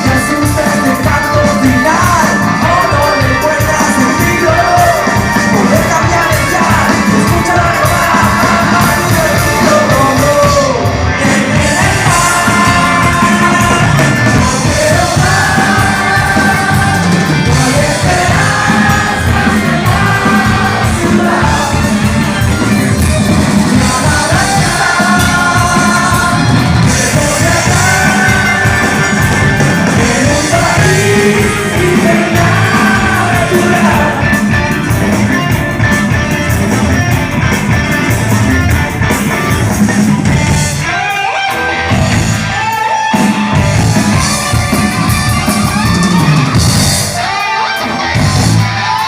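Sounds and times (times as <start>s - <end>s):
lead singing: 0.0s - 36.2s
rock band playing: 0.0s - 49.0s.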